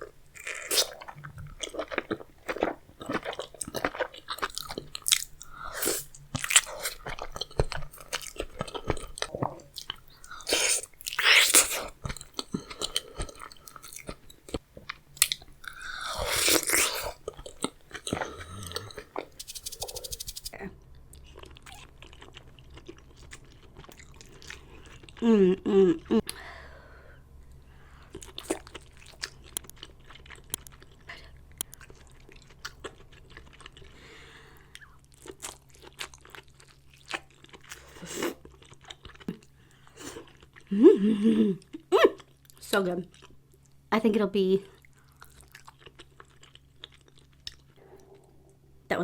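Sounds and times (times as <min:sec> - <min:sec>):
chewing and crunching food: 0:00.0 - 0:25.4, 0:27.4 - 0:43.9, 0:44.6 - 0:48.7
wet eating noise: 0:00.3 - 0:25.3.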